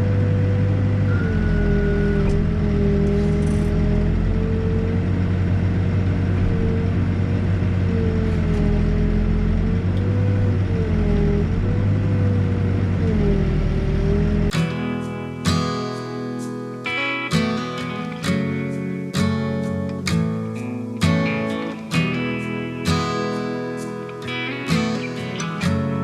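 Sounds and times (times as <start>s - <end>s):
diesel engine running under load: 0.0s - 15.5s
hydraulic whine: 0.0s - 15.6s
strummed acoustic guitar music: 0.0s - 26.0s.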